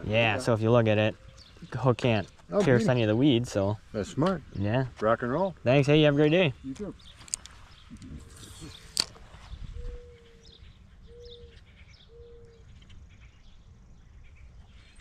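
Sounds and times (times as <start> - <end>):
small birds chirping: 0.0 - 15.0
bird cooing: 9.6 - 12.9.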